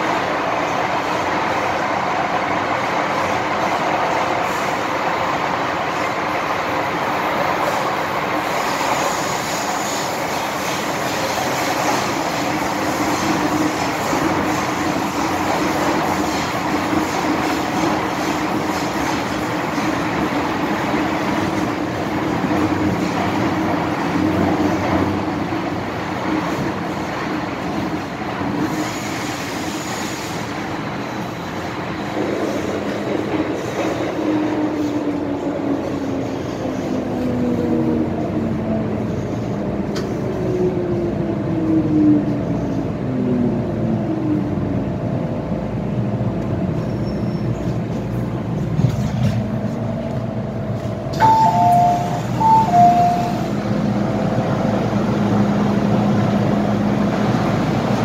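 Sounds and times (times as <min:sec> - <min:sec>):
metro train motor whine: 0:46.2 - 0:58.0.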